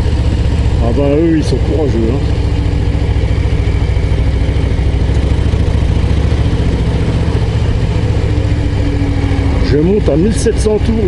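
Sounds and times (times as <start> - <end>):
motorcycle engine pulling at low revs: 0.0 - 11.0.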